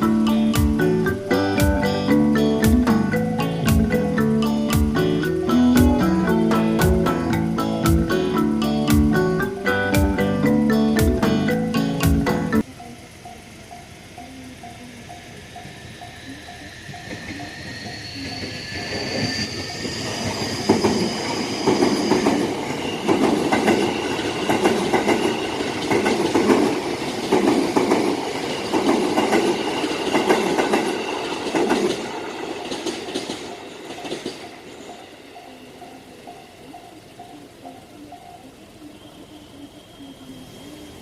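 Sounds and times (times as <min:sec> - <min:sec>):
crossing bell ringing: 0:00.0 - 0:41.0
train wheels clacking over rail joints: 0:14.2 - 0:36.4.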